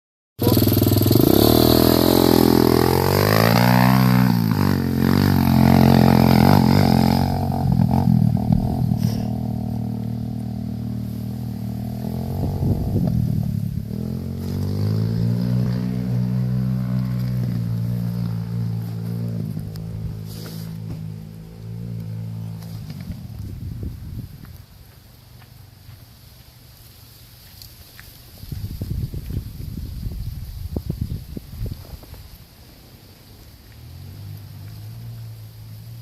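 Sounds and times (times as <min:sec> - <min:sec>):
motocross bike engine revving: 0:00.4 - 0:23.5.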